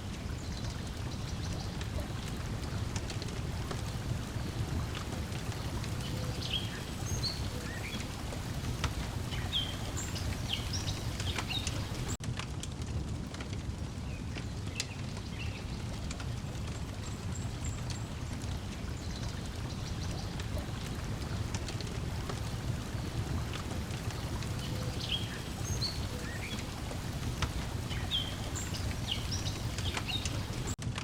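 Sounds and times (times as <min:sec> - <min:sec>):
lake water lapping: 0:00.0 - 0:12.2, 0:15.8 - 0:30.8
wood fire crackling: 0:00.0 - 0:31.0
bird chirps: 0:05.9 - 0:12.2, 0:24.2 - 0:30.7.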